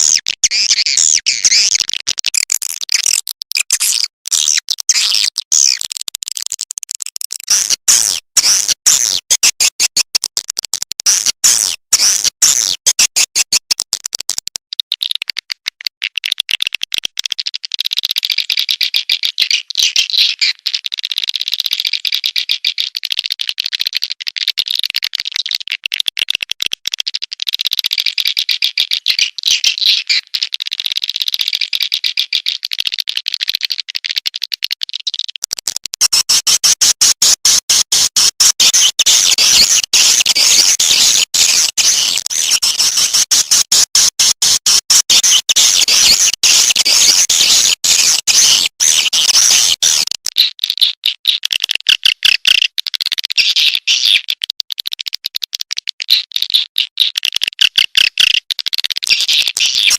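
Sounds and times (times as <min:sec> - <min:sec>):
recorded bird chittering calls: 0:00.0 - 0:10.2, 0:11.0 - 0:17.1, 0:17.7 - 0:23.2, 0:27.5 - 0:30.8, 0:36.0 - 0:54.5, 0:56.0 - 0:59.9.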